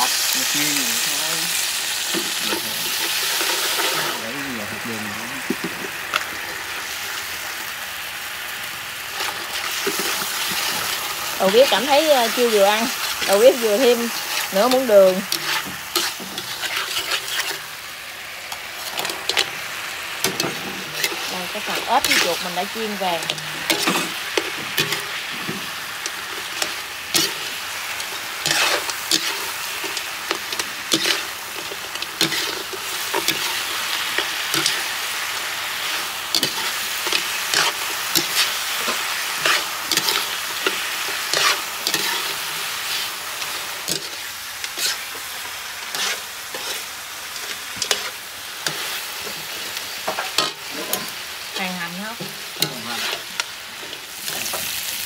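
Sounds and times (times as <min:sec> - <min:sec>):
food sizzling in a wok: 0:00.0 - 0:55.0
metal spatula scraping pan: 0:09.2 - 0:17.8, 0:18.8 - 0:45.2, 0:45.8 - 0:54.7.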